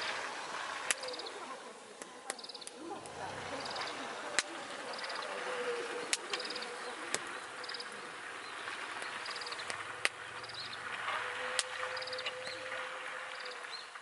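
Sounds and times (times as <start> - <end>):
campfire crackling and popping: 0.0 - 14.0
steady hiss: 0.0 - 14.0
insect chirping in trills: 3.5 - 13.6.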